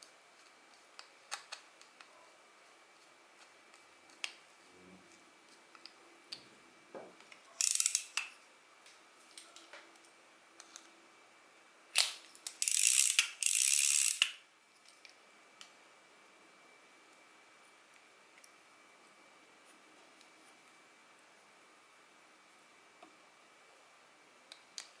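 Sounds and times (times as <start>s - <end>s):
small reel clicks: 7.3s - 8.4s, 12.0s - 15.7s
fishing reel gear noise: 7.6s - 8.3s, 12.0s - 14.4s.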